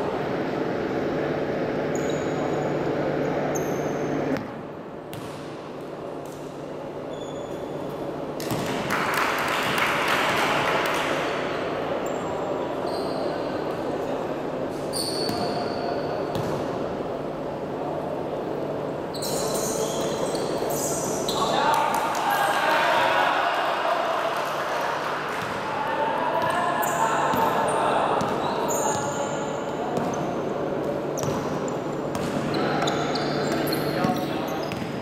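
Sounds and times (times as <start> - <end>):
sneaker squeaks on court: 7.1 - 7.8, 14.9 - 16.5, 19.1 - 21.5, 26.4 - 30.3, 31.2 - 35.0
basketball bouncing: 32.1 - 32.4, 34.0 - 35.0.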